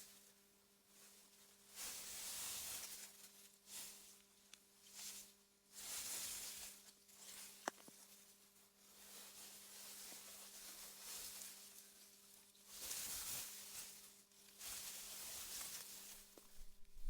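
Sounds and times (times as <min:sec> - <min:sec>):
faint low hum: 0:16.4 - 0:17.0
wind through grass: 0:16.4 - 0:17.0.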